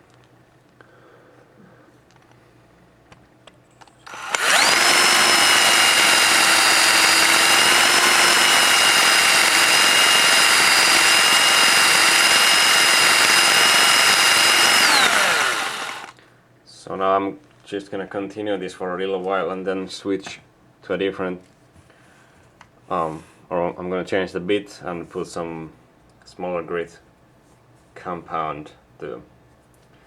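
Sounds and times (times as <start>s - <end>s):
electric drill high whine: 4.0s - 16.1s.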